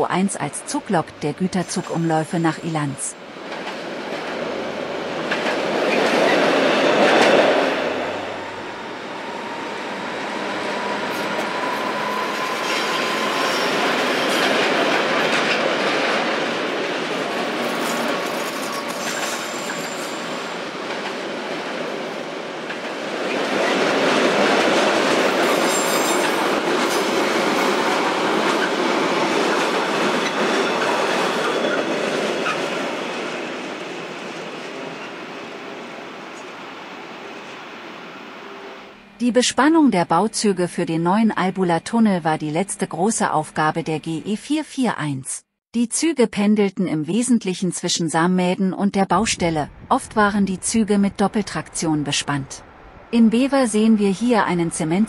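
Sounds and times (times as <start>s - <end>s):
freight train rumbling past: 0.0s - 39.2s, 49.2s - 55.0s
high wheel squeals: 8.3s - 14.4s.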